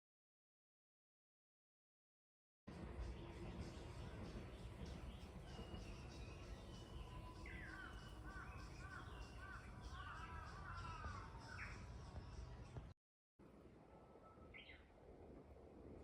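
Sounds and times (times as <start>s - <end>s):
birds chirping: 2.8s - 12.9s.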